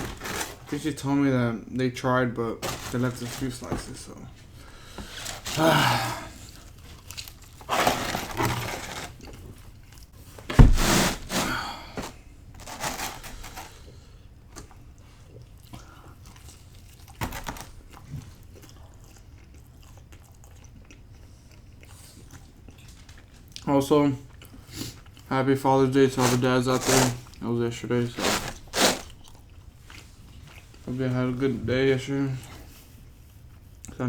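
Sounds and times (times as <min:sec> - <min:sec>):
person biting and chewing pizza: 0:00.0 - 0:00.8, 0:04.5 - 0:12.0, 0:28.2 - 0:30.7.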